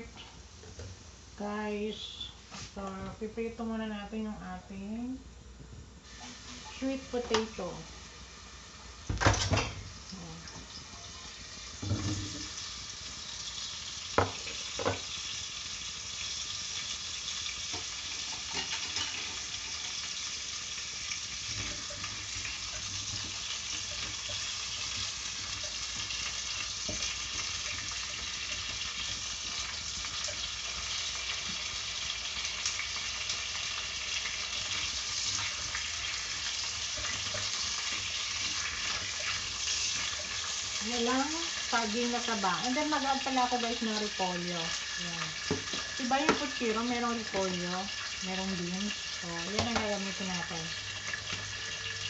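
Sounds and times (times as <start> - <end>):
food sizzling in hot oil: 0.0 - 3.0, 6.0 - 52.0
spatula stirring: 21.4 - 31.6, 34.2 - 40.8.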